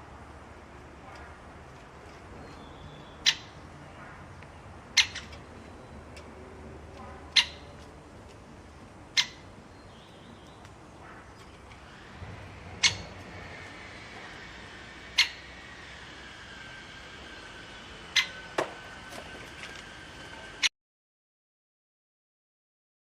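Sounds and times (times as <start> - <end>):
parrot chirping: 2.5 - 3.6, 5.0 - 5.7
parrot calling: 2.7 - 3.6, 5.0 - 5.4, 7.3 - 7.7, 9.1 - 9.4, 12.8 - 13.2, 15.0 - 15.8, 18.1 - 18.6.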